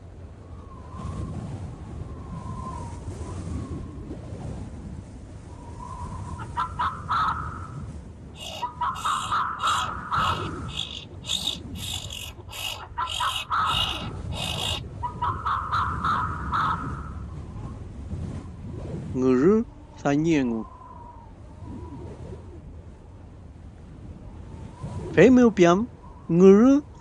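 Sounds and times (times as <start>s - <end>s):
birds calling: 6.4s - 7.8s, 8.4s - 17.2s.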